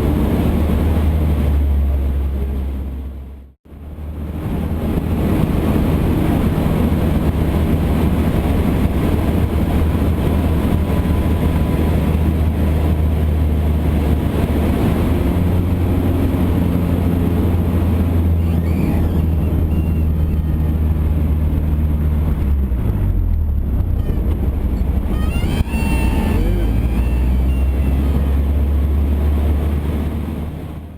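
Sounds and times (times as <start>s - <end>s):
light aircraft engine droning: 0.0s - 30.9s.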